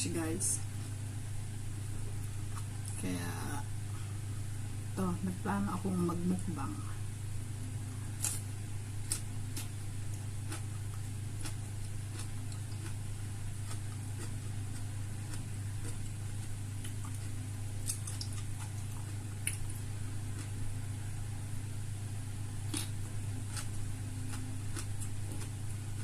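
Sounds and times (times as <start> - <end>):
steady low hum: 0.0 - 26.0
person chewing: 8.1 - 20.7, 22.6 - 25.8.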